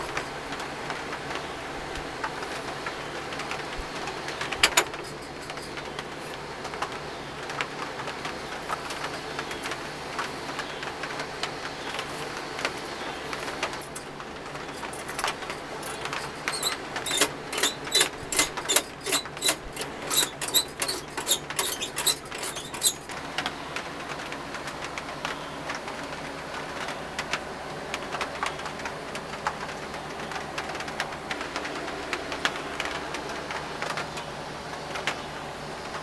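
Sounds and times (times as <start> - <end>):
steady low hum: 10.8 - 23.2.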